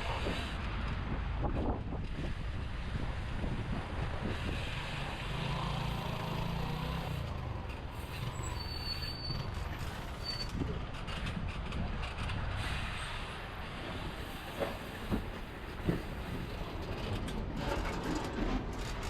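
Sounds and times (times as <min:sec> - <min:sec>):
wind on microphone: 0:00.0 - 0:05.2
large vehicle engine hum: 0:00.0 - 0:19.0
road traffic: 0:00.0 - 0:19.0
short high squeal: 0:08.1 - 0:09.6, 0:10.2 - 0:10.5.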